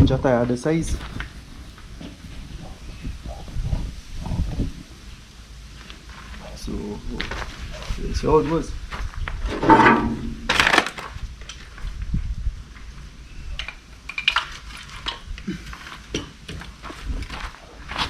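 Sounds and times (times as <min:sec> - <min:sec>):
low steady rumble: 0:08.8 - 0:13.2.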